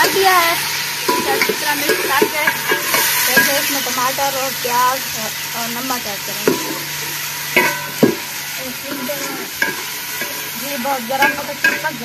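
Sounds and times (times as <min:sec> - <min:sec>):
chicken sizzling in pot: 0:00.0 - 0:12.0
metal ladle clanking against pot: 0:01.0 - 0:03.9, 0:06.4 - 0:12.0.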